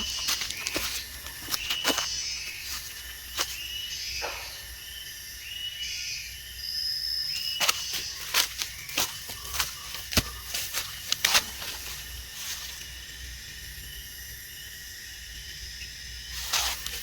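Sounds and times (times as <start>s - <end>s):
footsteps on dry leaves: 0.0s - 4.5s, 7.3s - 13.3s, 16.2s - 17.0s.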